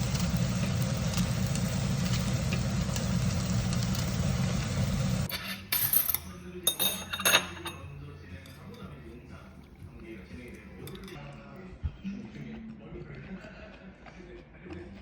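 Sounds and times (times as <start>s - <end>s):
low engine rumble: 0.0s - 5.3s.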